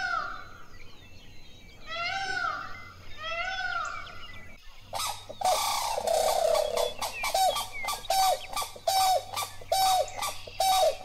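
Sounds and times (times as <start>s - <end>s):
harsh rattling bird calls: 1.8s - 11.0s
peacock calling: 4.9s - 11.0s.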